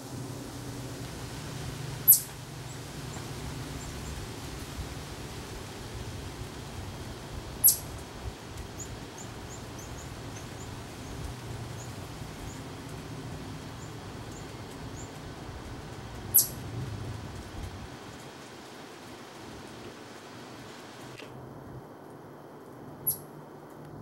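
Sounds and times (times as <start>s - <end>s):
faint high bird chirps: 2.1s - 2.3s, 7.6s - 7.9s, 16.3s - 16.6s, 23.0s - 23.3s
sharp high bird chips: 2.1s - 2.3s, 7.6s - 7.8s, 16.4s - 16.6s
low background rumble: 6.0s - 18.7s.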